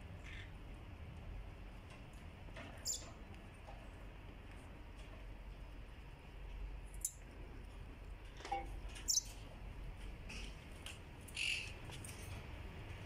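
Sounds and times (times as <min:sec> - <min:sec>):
faint steady background noise: 0:00.0 - 0:13.0
pet birds calling: 0:02.8 - 0:03.1, 0:09.0 - 0:09.4, 0:11.3 - 0:11.8.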